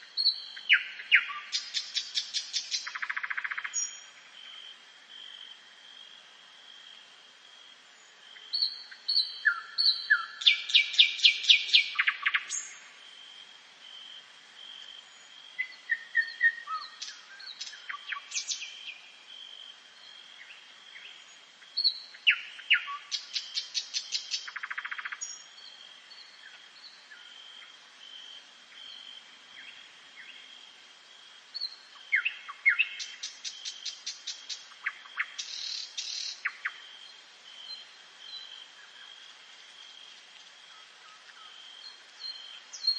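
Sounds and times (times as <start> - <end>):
songbirds singing: 0.0 - 5.4, 7.8 - 13.0, 14.5 - 30.8, 31.4 - 42.9
bird chirps: 0.2 - 4.1, 8.5 - 12.8.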